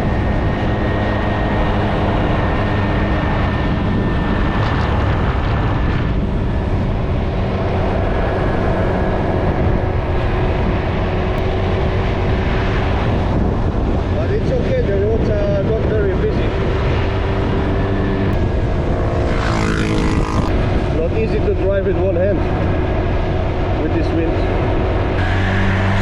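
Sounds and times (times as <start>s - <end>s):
motorcycle engine running: 0.0s - 26.0s
wind rushing over microphone: 0.0s - 26.0s.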